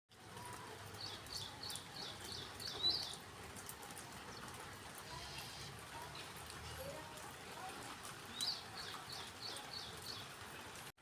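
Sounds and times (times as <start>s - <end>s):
songbird calling: 1.0s - 3.2s.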